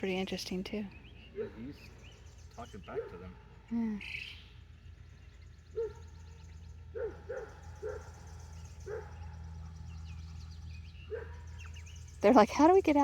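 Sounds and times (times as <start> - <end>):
dog barking: 1.4 - 1.8, 2.9 - 3.6, 5.8 - 6.0, 6.9 - 8.2, 8.8 - 9.3, 11.1 - 11.5.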